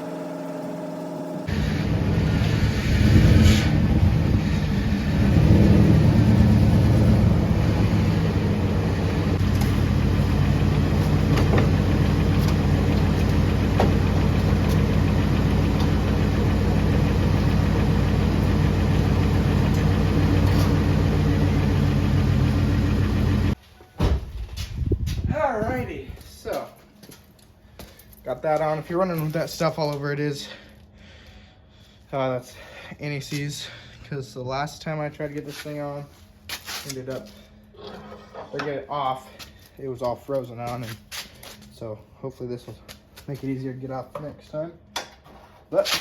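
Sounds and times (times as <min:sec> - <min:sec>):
vehicle engine running: 0:00.0 - 0:23.6.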